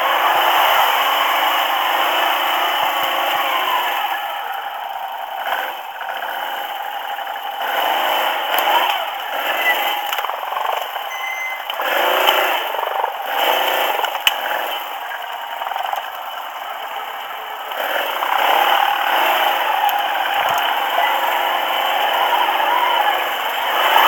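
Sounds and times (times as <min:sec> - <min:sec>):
atv engine running: 0:00.0 - 0:24.0
vehicle rattling over rough ground: 0:00.0 - 0:24.0.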